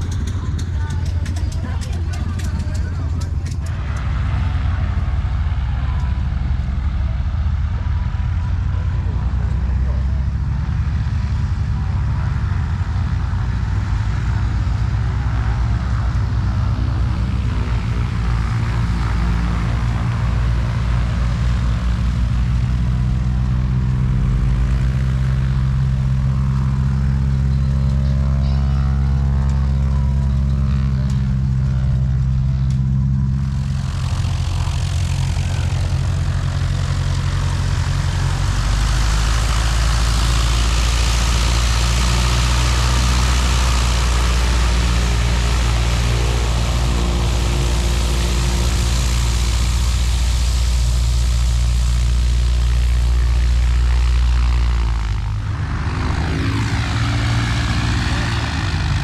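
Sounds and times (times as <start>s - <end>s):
propeller airplane engine running: 0.0s - 59.0s
loud rushing noise: 33.5s - 59.0s.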